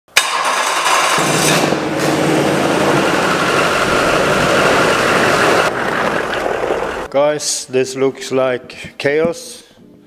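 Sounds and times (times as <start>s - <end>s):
diesel engine running: 0.8s - 7.1s.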